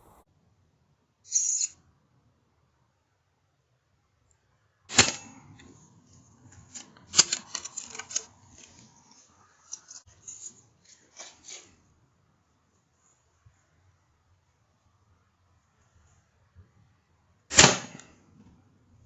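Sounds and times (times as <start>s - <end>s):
air rifle shots: 4.9s - 5.6s, 17.5s - 18.1s
clicks and rustles: 5.0s - 11.8s.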